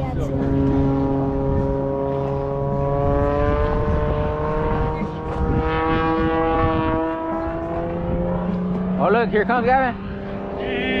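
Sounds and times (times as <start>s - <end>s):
aircraft engine droning: 10.6s - 11.0s.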